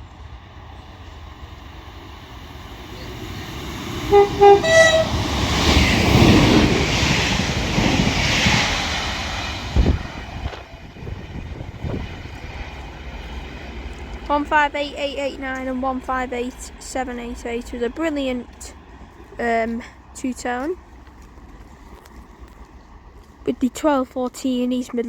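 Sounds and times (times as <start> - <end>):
train rushing past: 0.0 - 21.6
two-tone train horn: 4.0 - 5.7.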